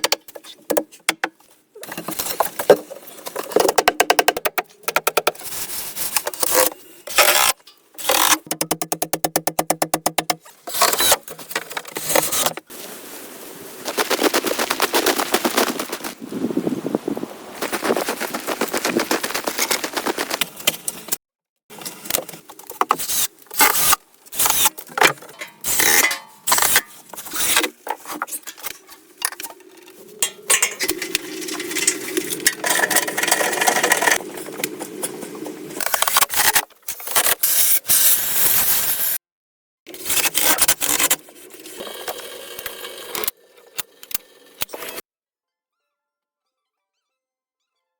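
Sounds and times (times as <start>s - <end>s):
hand tools scraping wood: 0.0s - 12.6s, 21.9s - 35.2s.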